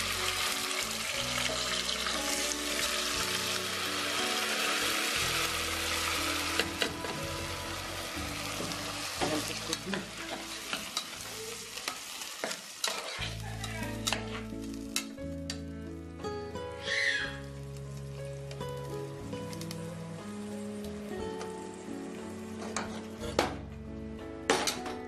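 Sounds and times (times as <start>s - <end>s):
paste frying in hot oil: 0.0s - 15.8s.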